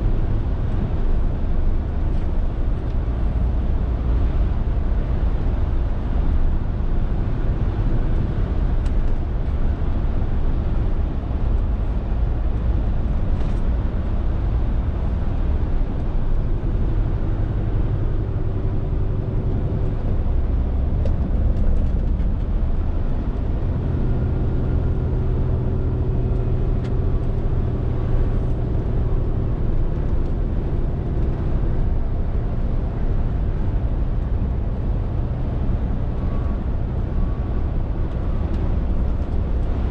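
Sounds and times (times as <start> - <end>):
diesel lorry engine running: 0.0 - 39.9
road noise: 0.0 - 39.9.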